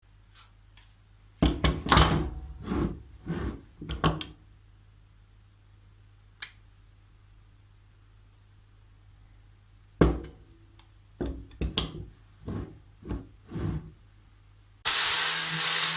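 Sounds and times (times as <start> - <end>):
tool knocking and scraping on workbench: 1.4 - 4.3, 10.0 - 10.4, 11.2 - 14.0.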